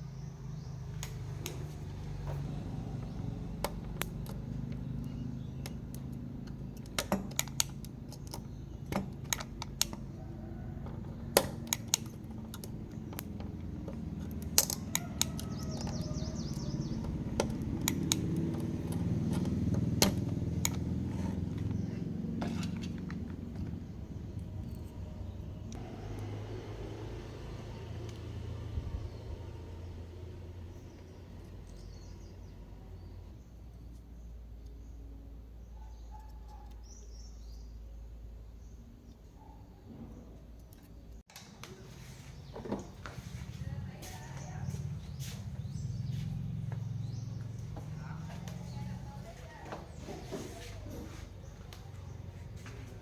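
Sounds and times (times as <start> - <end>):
sharp clicks and taps: 10.8 - 25.0.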